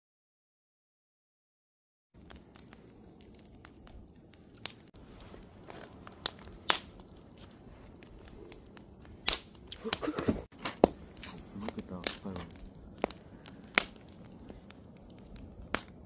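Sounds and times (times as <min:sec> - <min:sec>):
burning wood popping: 0:02.2 - 0:16.0
campfire crackling: 0:02.2 - 0:16.0
low fire hiss: 0:02.2 - 0:16.0.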